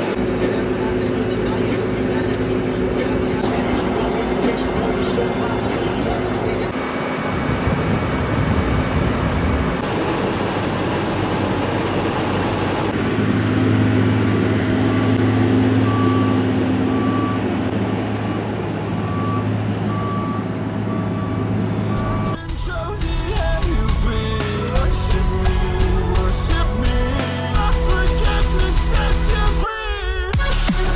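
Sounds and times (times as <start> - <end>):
diesel engine running: 0.0 - 29.7
reversing alarm beeps: 13.7 - 22.4.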